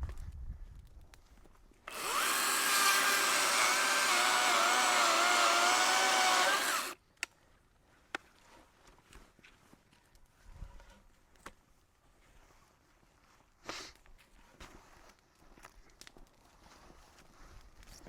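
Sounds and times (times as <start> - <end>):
chainsaw cutting at full throttle: 1.9 - 7.0.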